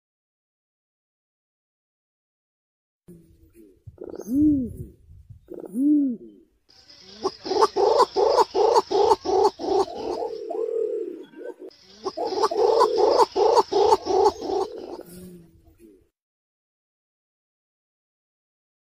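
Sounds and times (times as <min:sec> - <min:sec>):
pigeon calling deep notes: 0:03.1 - 0:16.0.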